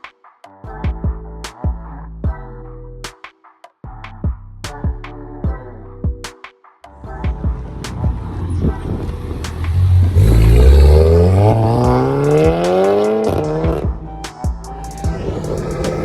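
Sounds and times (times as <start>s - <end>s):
car engine accelerating hard: 7.6s - 13.8s, 15.1s - 16.0s.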